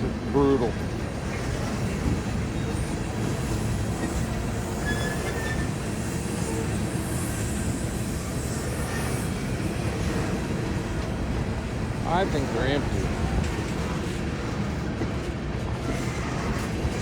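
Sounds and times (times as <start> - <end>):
train wheels rumbling on rail: 0.0 - 17.0
faint wheel squeals: 0.4 - 10.4.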